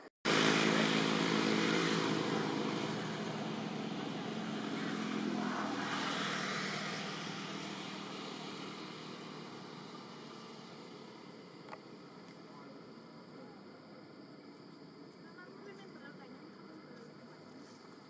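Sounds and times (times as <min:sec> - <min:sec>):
vehicle engine running: 0:00.3 - 0:12.3.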